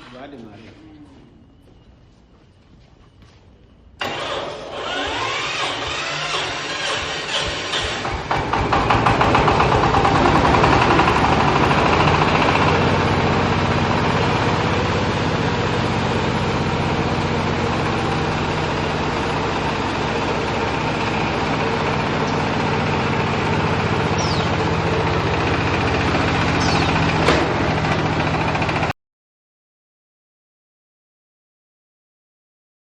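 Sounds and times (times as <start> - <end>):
baler machine motor drone: 4.0 - 28.9.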